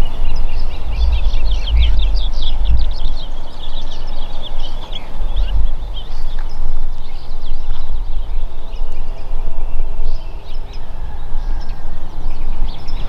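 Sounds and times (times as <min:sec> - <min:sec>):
heavy low rumble: 0:00.0 - 0:08.5
small birds chirping: 0:00.0 - 0:13.0.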